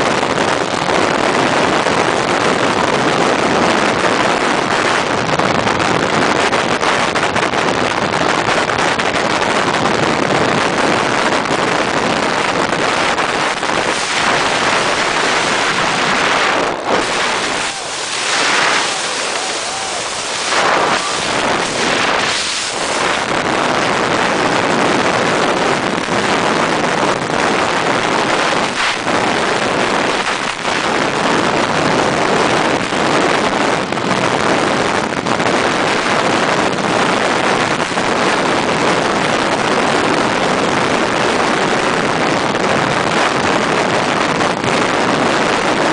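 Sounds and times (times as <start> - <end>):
wind rushing over microphone: 0.0 - 45.9.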